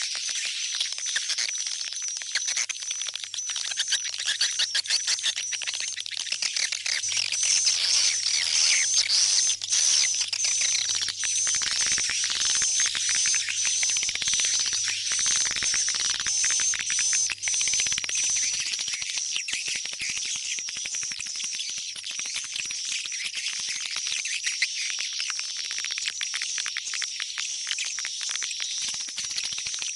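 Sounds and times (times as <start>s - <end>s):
swiftlets chirping and twittering: 0.0s - 20.5s.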